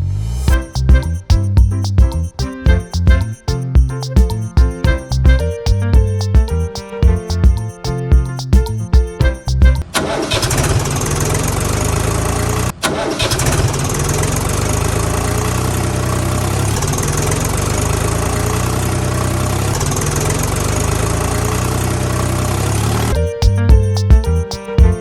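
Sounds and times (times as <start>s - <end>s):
tractor engine running: 9.4s - 25.0s.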